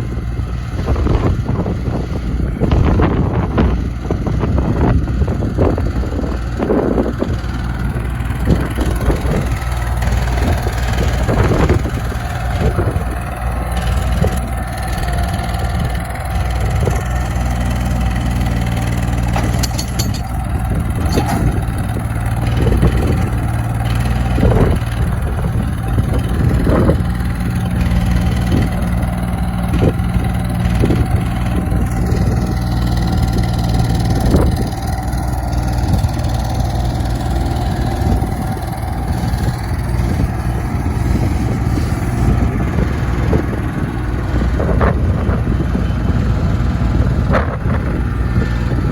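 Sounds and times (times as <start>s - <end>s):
diesel tractor engine running: 0.0s - 48.9s
knocks and clunks: 19.2s - 22.2s.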